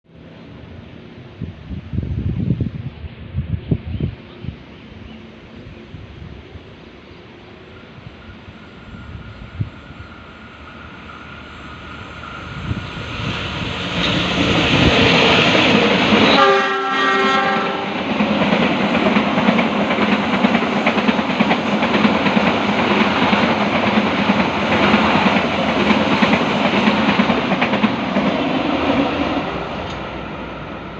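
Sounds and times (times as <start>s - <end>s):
train carriages rolling: 7.6s - 30.9s
train horn blast: 16.2s - 18.0s
wheels clacking over rail joints: 17.8s - 29.2s.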